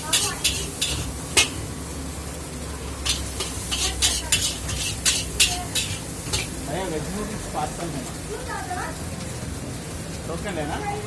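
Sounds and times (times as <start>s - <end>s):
metal ladle clacking against wok: 0.0s - 1.7s, 3.0s - 6.6s
food sizzling: 0.0s - 11.0s.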